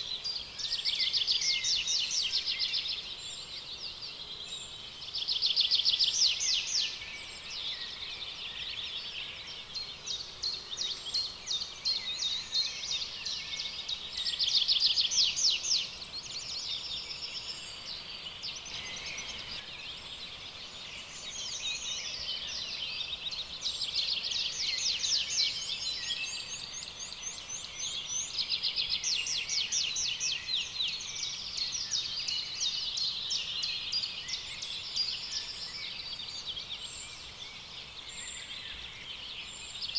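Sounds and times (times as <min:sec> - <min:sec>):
faint background hiss: 0:00.0 - 0:39.9
birds trilling and chirping: 0:18.6 - 0:19.6.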